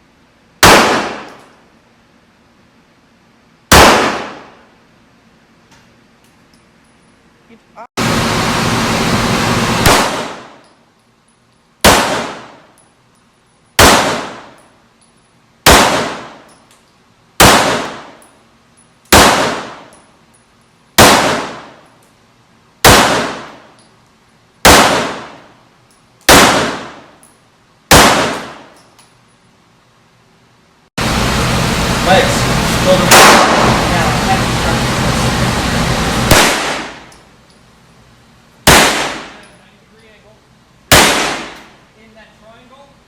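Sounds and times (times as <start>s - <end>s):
gunshots: 0.6s - 1.4s, 3.7s - 4.6s, 9.4s - 10.6s, 11.8s - 12.6s, 13.8s - 14.6s, 15.6s - 16.4s, 17.4s - 18.2s, 19.1s - 19.9s, 21.0s - 21.8s, 22.8s - 23.6s, 24.6s - 25.4s, 26.3s - 27.1s, 27.9s - 28.7s, 32.1s - 35.0s, 36.0s - 37.1s, 38.6s - 39.4s, 40.9s - 41.7s.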